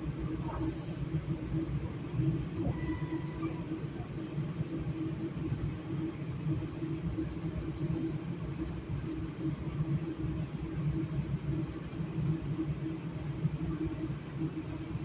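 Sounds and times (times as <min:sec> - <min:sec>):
train rumble inside coach: 0:00.0 - 0:15.0.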